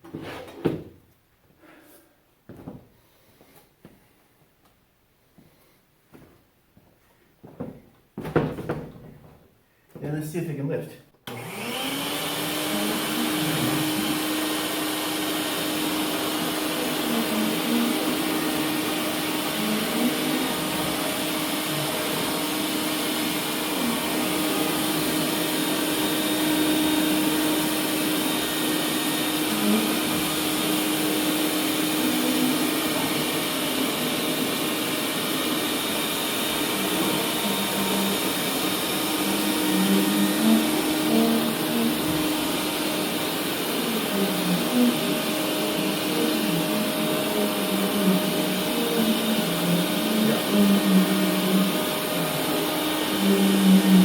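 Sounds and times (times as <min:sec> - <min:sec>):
shop vac motor whine: 0:11.2 - 0:54.0.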